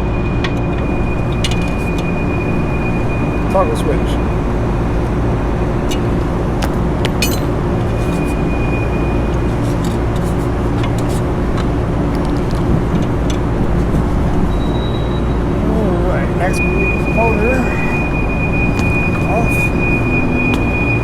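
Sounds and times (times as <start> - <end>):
mechanical drone with low hum: 0.0 - 21.0.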